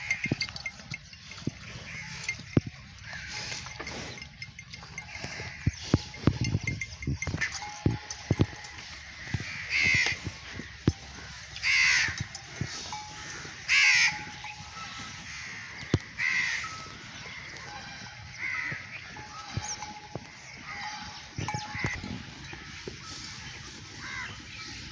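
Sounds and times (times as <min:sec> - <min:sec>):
cattle chewing fodder: 0:00.0 - 0:24.9
harsh bird calls: 0:07.4 - 0:24.9.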